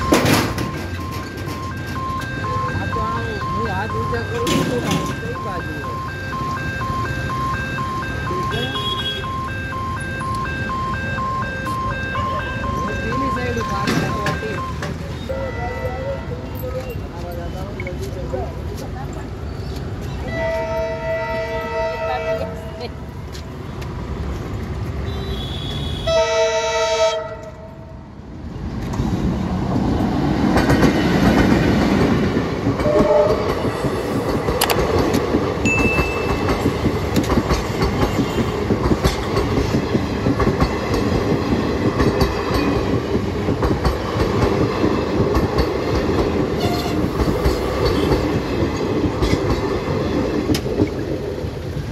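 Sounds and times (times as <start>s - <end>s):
wheels clattering on rail joints: 0.0s - 7.0s, 12.7s - 15.3s, 28.5s - 51.9s
train coaches rumbling past: 0.0s - 51.9s
train horn: 20.3s - 22.9s, 25.1s - 28.0s, 32.8s - 33.6s, 46.6s - 47.2s.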